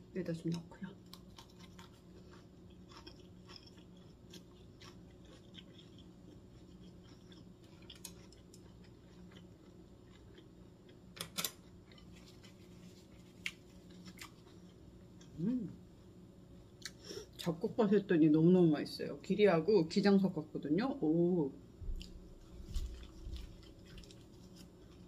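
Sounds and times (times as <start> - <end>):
faint steady hum: 0.0 - 25.0
close chewing with crunches: 0.4 - 15.4, 21.8 - 25.0.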